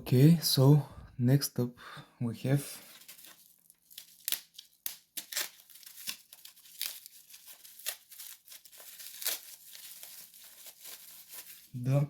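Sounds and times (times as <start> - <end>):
packaging crinkling and tearing: 2.8 - 11.8.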